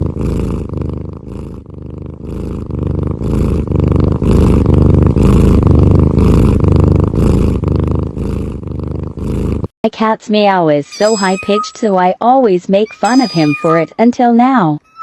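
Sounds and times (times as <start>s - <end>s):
cat purring loudly: 0.0s - 9.7s, 12.8s - 13.9s.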